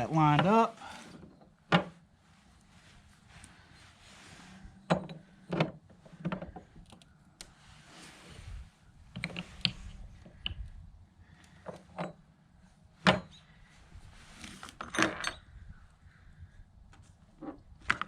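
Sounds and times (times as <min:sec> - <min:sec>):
parts clattering: 0:13.0 - 0:13.7.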